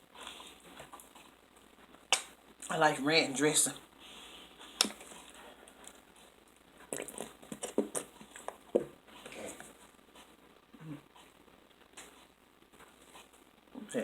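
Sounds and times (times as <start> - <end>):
person chewing: 4.6 - 8.8.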